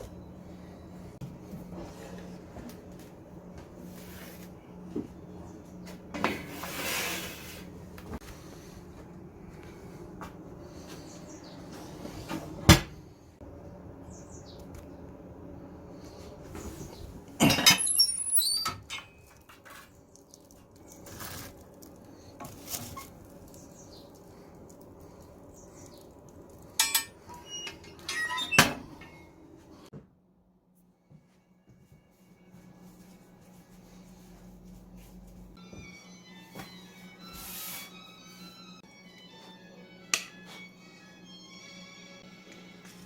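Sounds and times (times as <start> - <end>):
low steady hum: 18.8 - 37.4.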